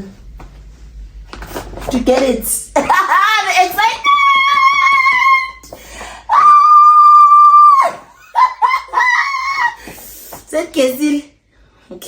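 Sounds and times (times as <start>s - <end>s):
woman squealing with delight: 6.3s - 10.0s.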